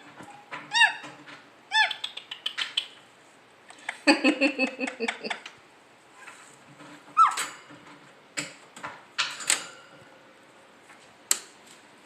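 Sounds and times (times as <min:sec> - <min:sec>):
parrot squeak: 0:00.7 - 0:01.1, 0:01.7 - 0:02.1, 0:07.2 - 0:07.4.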